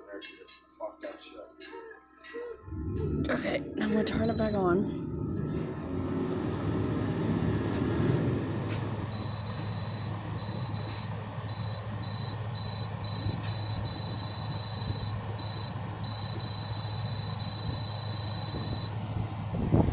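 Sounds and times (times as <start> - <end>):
air conditioner humming: 2.7 - 19.9
control panel beeping: 3.8 - 4.8.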